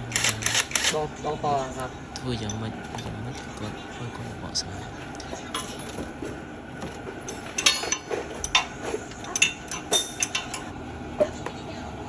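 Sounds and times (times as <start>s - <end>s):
metallic clinking and knocking: 5.1s - 6.2s, 6.8s - 10.7s.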